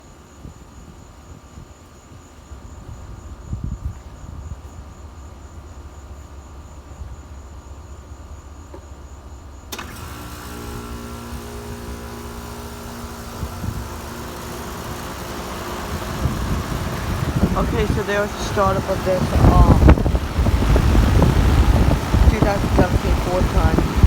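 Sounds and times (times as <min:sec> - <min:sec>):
fan air rushing: 0:09.7 - 0:24.0
heat pump humming: 0:09.7 - 0:24.0.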